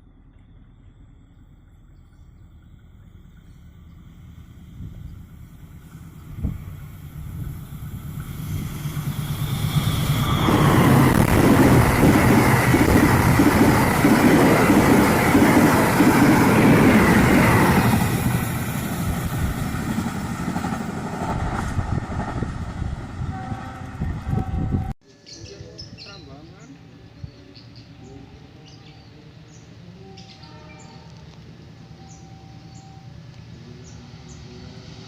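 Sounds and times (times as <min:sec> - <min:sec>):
train passing: 0:00.0 - 0:35.0
train horn: 0:23.2 - 0:24.9.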